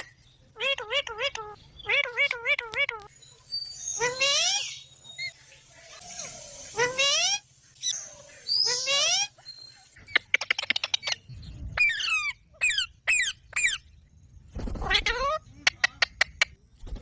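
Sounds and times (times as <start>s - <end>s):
parrots calling: 5.9s - 11.2s, 11.8s - 13.8s.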